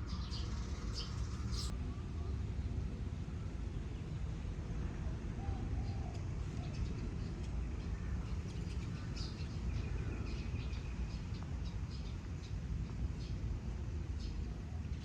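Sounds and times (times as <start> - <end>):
small birds chirping: 0.0 - 1.7, 5.9 - 15.0
low rumble of wind or traffic: 0.0 - 15.0.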